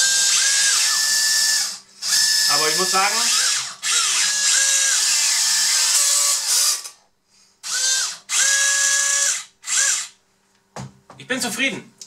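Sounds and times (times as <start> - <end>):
electric motors and gearbox whining: 0.0 - 7.0, 7.6 - 10.2.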